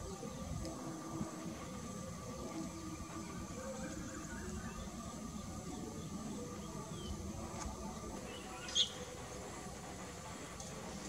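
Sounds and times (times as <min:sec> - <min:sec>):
low outdoor background noise: 0:00.0 - 0:11.0.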